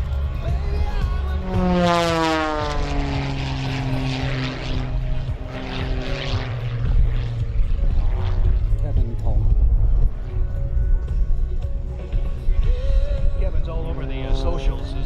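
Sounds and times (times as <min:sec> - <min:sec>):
propeller plane passing: 0:00.0 - 0:15.0.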